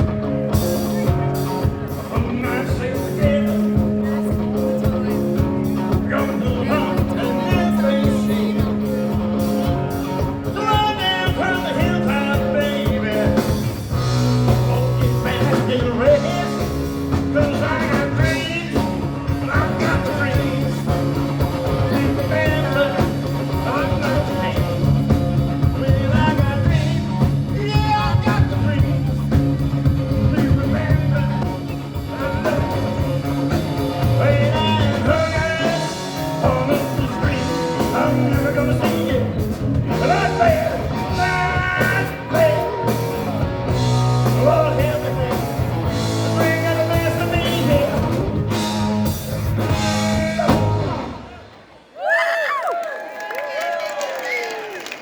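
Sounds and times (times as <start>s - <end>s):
bass guitar: 0.0s - 51.6s
electric guitar: 0.0s - 51.6s
drums: 0.0s - 55.0s
person singing: 0.6s - 43.5s.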